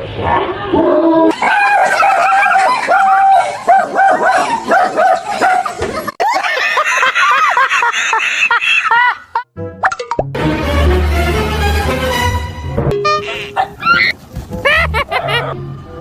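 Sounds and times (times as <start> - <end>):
dog barking and yipping: 1.3 - 5.8, 13.1 - 15.6
dog yelping: 13.1 - 15.6.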